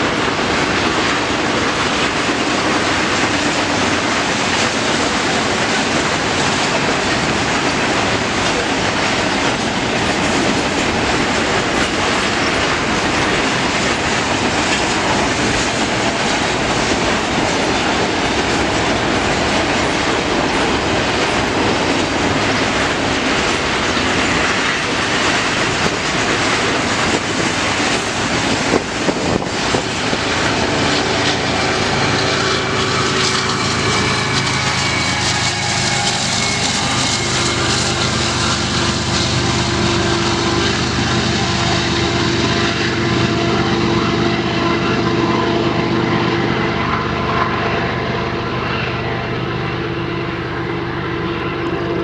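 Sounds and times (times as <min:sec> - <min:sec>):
freight train wheels clacking: 0:00.0 - 0:52.0
whining tones: 0:06.6 - 0:47.6.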